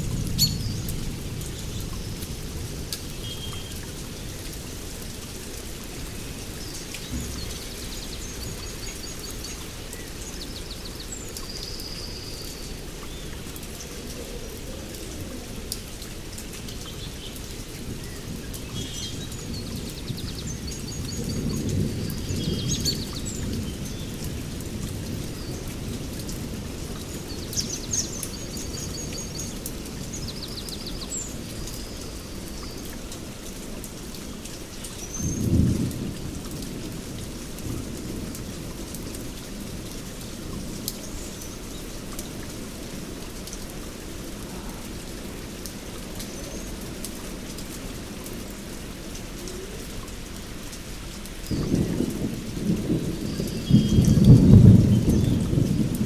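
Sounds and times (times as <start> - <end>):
rain falling: 0.0 - 56.0
thunder rumbling: 7.0 - 9.8, 51.5 - 56.0.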